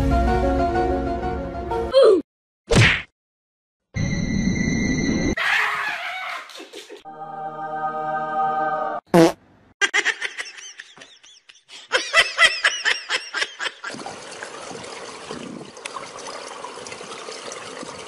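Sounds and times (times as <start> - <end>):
high-pitched laughter: 5.4 - 7.0, 9.8 - 14.0
swimming pool water washing: 12.7 - 18.0.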